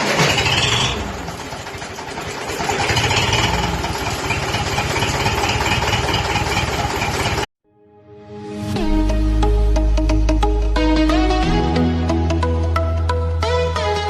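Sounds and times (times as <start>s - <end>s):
tractor diesel engine running: 0.0s - 7.5s.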